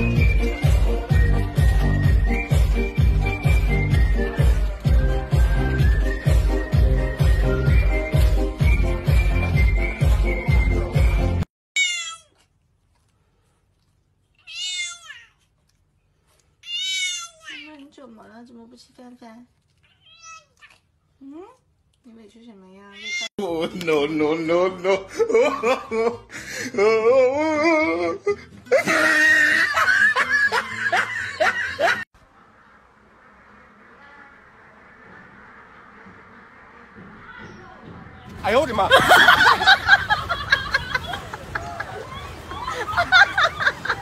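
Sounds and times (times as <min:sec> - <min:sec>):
cat meowing: 0:11.8 - 0:12.4, 0:14.4 - 0:15.4, 0:16.6 - 0:17.7
person laughing: 0:24.7 - 0:32.0, 0:38.9 - 0:44.0.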